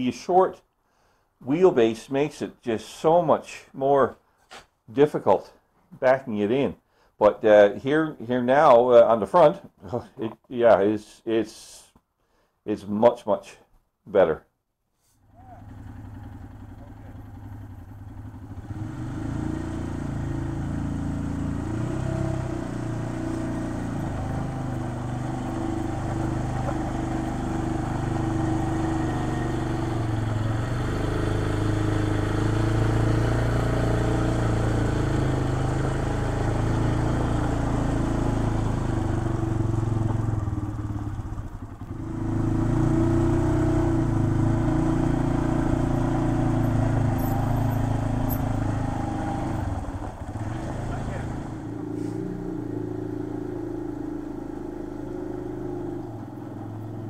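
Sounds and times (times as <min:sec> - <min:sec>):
quad bike engine running: 0:15.3 - 0:57.0.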